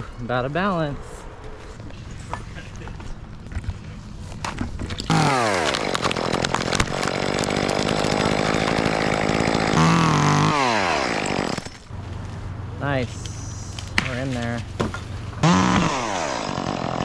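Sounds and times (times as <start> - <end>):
chainsaw cutting wood: 4.9 - 11.9, 13.8 - 17.0.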